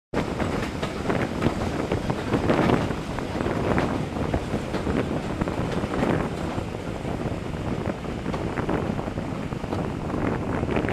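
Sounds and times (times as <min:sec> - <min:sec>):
train carriages rumbling: 0:00.2 - 0:10.9
wind buffeting microphone: 0:00.2 - 0:10.9.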